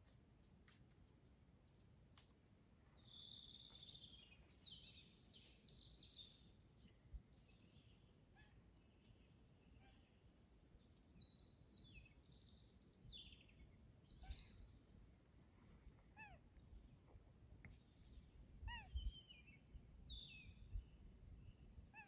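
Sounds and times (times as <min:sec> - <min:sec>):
songbirds trilling: 0:07.4 - 0:14.9.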